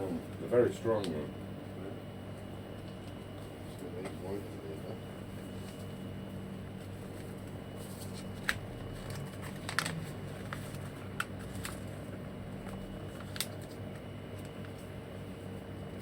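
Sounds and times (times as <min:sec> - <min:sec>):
low room hum: 0:00.0 - 0:16.0
sharp clicks and crinkles: 0:08.0 - 0:11.9, 0:12.6 - 0:14.9.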